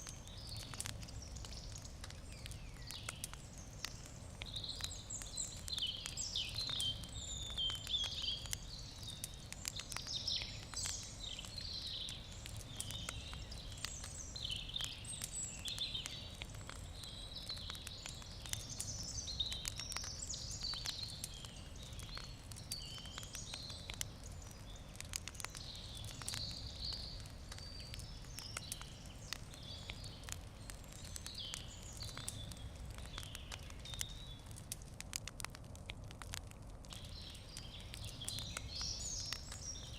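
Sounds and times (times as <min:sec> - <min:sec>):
small birds chirping: 0:00.0 - 0:35.5, 0:36.2 - 0:39.9
campfire crackling and popping: 0:00.0 - 0:39.9.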